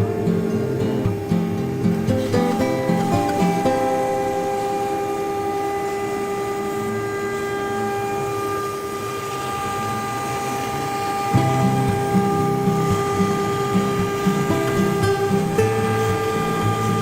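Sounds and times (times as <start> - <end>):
router spindle whine: 1.2 - 17.0
hiss of cutting: 2.0 - 8.4, 11.3 - 17.0.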